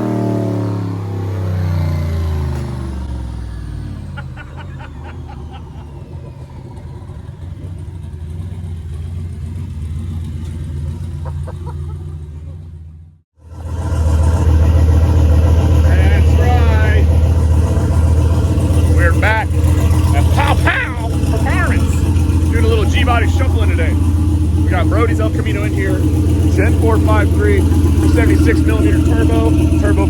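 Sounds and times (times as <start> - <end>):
car engine running: 0.0 - 30.0
turbo whine: 12.8 - 30.0.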